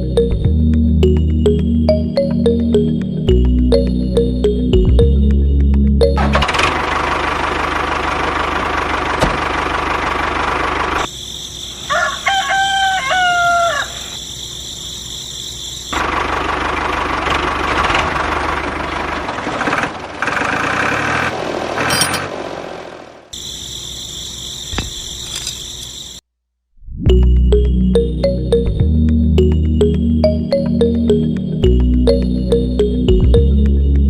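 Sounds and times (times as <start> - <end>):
rooster crowing: 11.8 - 14.2.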